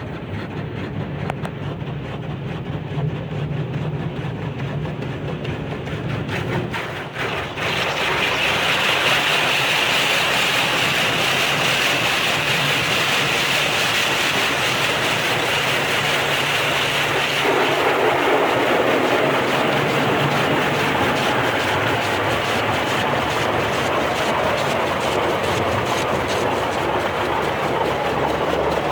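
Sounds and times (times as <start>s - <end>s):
water spraying onto car: 7.1s - 28.9s
motors humming: 15.4s - 28.9s.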